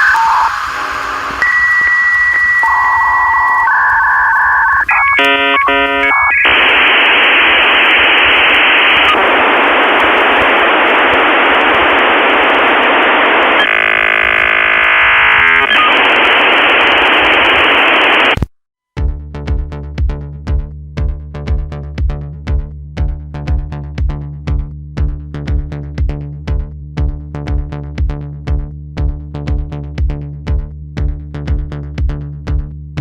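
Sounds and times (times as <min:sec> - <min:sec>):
harsh static-like hiss: 0:00.0 - 0:18.5
electronic beeps and warbling tones: 0:02.6 - 0:07.4, 0:13.6 - 0:18.4.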